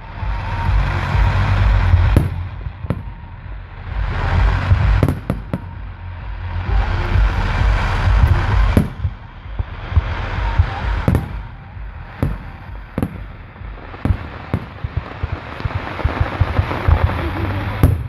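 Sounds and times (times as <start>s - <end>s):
hissing crackle: 0.0s - 18.0s
low rumble: 0.0s - 18.0s
firework shells bursting: 7.3s - 18.0s.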